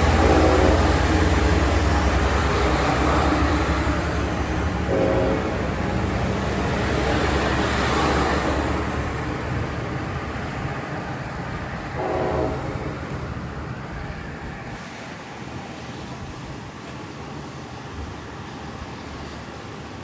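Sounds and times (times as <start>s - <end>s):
train horn blast: 0.0s - 1.9s, 4.8s - 6.6s, 11.8s - 13.3s
diesel train passing: 0.0s - 20.0s.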